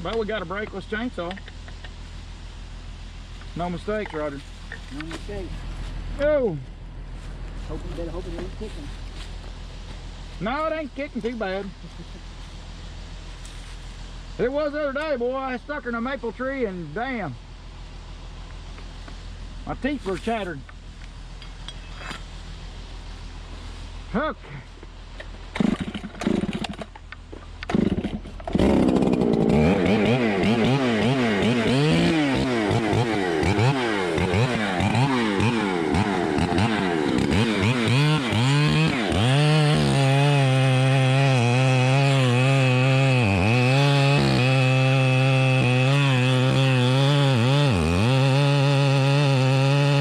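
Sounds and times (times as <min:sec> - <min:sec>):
two-stroke chainsaw engine: 0:25.5 - 0:27.0, 0:27.6 - 0:50.0.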